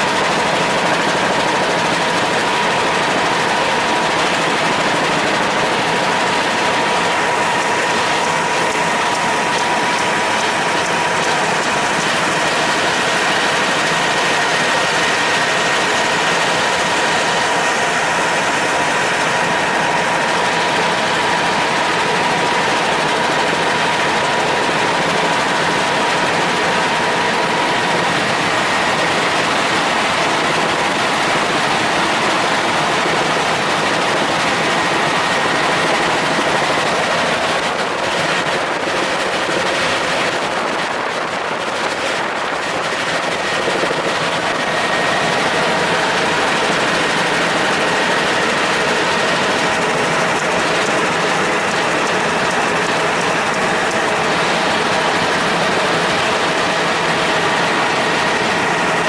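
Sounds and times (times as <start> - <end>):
helicopter rotor and engine: 0.0 - 59.0.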